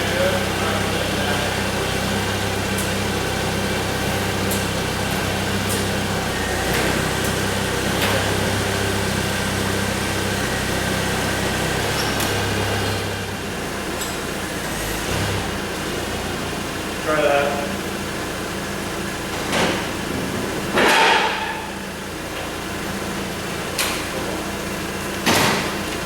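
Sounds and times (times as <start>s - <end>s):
machine humming: 0.0s - 16.7s.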